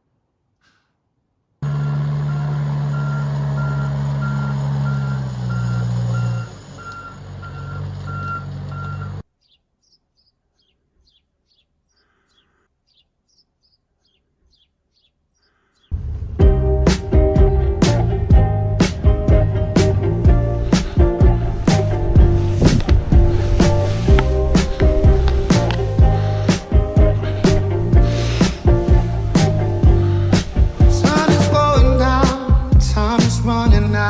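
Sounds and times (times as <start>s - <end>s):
heavy vehicle engine running: 1.6s - 9.2s, 16.0s - 34.0s
reversing alarm beeping: 1.6s - 9.2s
faint bird chirps: 4.4s - 16.0s
music: 16.0s - 34.0s.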